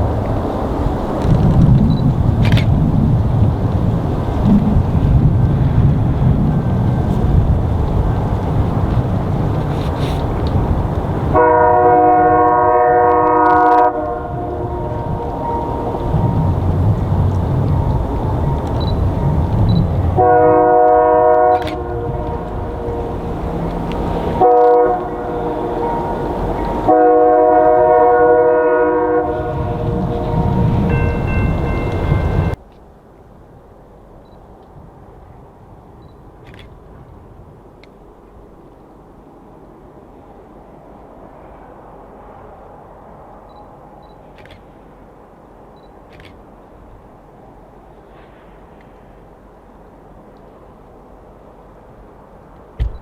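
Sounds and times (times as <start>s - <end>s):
low rumbling: 0.0s - 32.6s
locomotive air horn blast: 11.2s - 32.6s.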